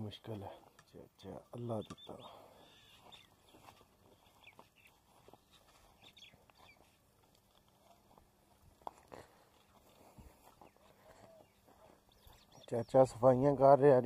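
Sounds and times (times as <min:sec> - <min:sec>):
faint bird chirps: 0:01.5 - 0:07.0, 0:09.6 - 0:13.2.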